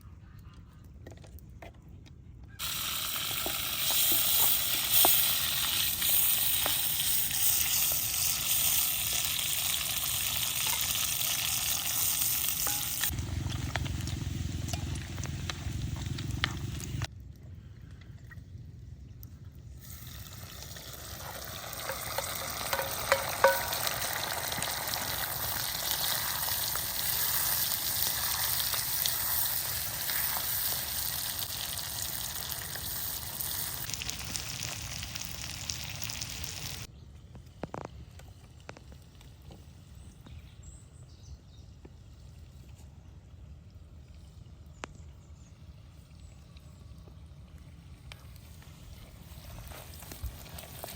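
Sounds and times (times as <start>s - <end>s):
food frying in hot pan: 2.6s - 17.1s, 19.9s - 36.9s, 49.0s - 50.9s.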